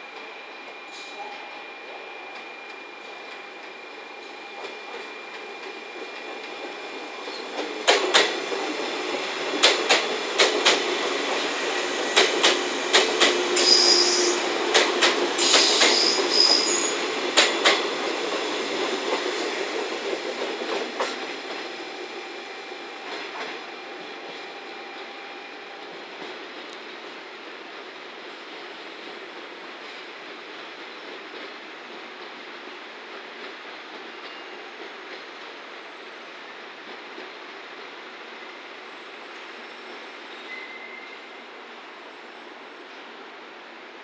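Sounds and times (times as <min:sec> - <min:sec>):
train wheels clacking over rail joints: 0:05.4 - 0:21.6
high wheel squeal: 0:13.5 - 0:14.5, 0:15.4 - 0:17.0.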